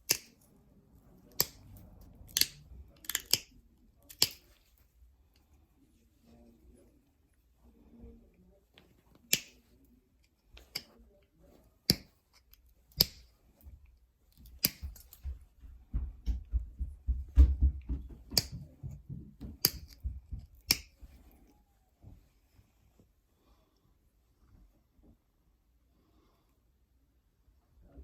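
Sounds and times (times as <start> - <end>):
stone rubbing and handling: 0.0 - 7.0, 8.8 - 15.4, 18.3 - 21.6.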